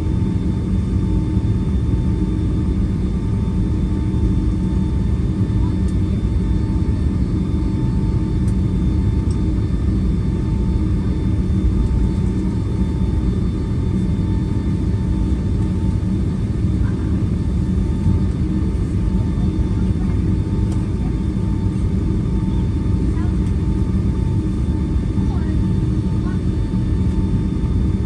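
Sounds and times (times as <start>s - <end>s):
low engine rumble: 11.4s - 27.2s.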